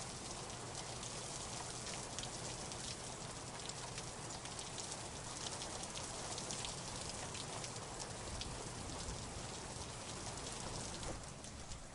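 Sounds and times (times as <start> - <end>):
rain hissing: 0.0 - 11.9
sharp raindrop hits: 5.5 - 11.9.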